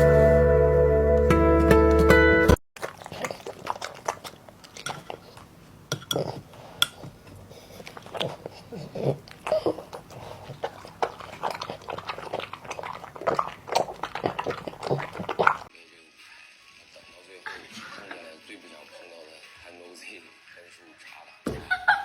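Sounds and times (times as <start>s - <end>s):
animal chewing and eating: 2.8s - 15.7s.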